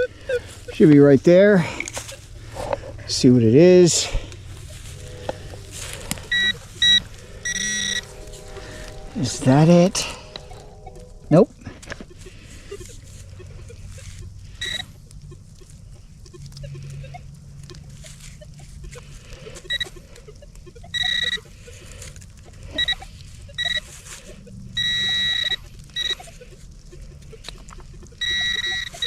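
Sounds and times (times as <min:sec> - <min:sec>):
metal detector beeping: 0:00.0 - 0:29.0
soft scraping and rustling: 0:00.4 - 0:14.9, 0:21.8 - 0:24.8.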